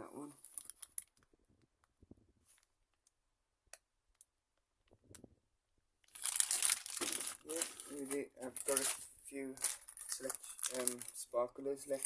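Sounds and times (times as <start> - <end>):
plastic wrapping crinkling: 0.4 - 1.3, 6.1 - 12.0.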